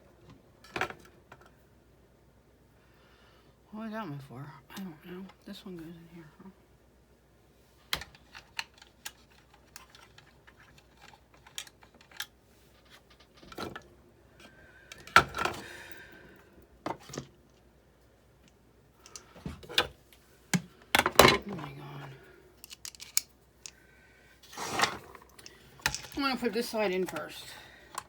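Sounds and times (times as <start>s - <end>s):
parts clattering: 18.4s - 23.8s, 24.4s - 28.0s
machine parts clicking and tapping: 22.6s - 23.2s.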